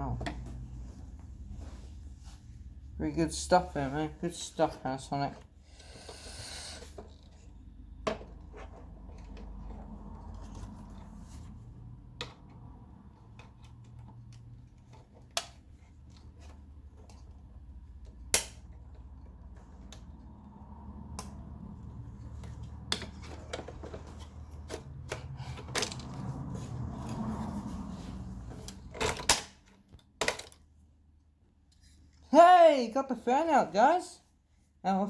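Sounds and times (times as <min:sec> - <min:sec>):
loud plastic snap: 0:18.3 - 0:18.7.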